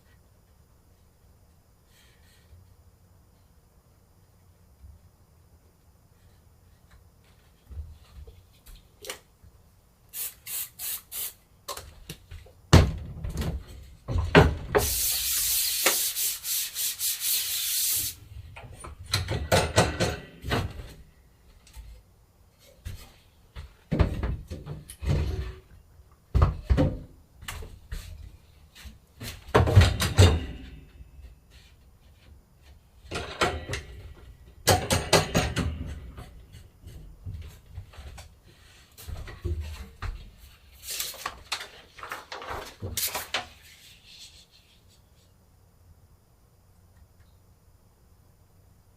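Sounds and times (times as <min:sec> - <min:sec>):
steady hissing noise: 0:00.0 - 0:48.9
rubbing and scraping strokes: 0:14.8 - 0:18.2, 0:43.5 - 0:45.3.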